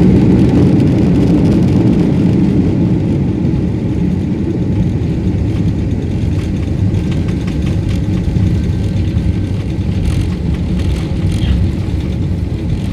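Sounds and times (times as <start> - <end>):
aircraft cabin rumble: 0.0 - 12.9
light clicks and rattles: 6.2 - 12.9.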